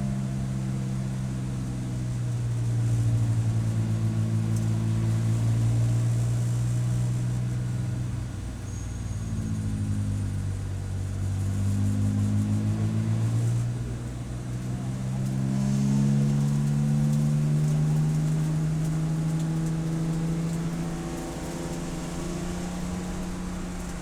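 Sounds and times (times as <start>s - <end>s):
race car engine accelerating: 11.3s - 24.0s.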